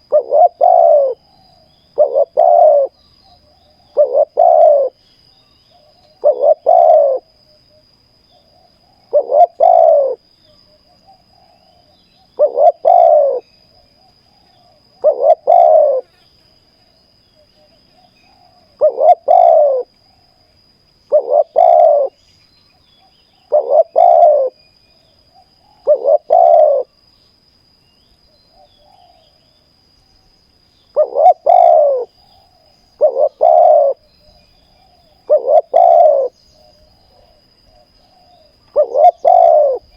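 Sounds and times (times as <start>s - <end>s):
dove cooing: 0.0s - 5.0s, 5.7s - 7.3s, 8.5s - 10.2s, 11.0s - 13.6s, 14.5s - 16.1s, 18.0s - 20.0s, 21.1s - 22.2s, 23.4s - 24.6s, 25.3s - 27.0s, 30.9s - 39.9s.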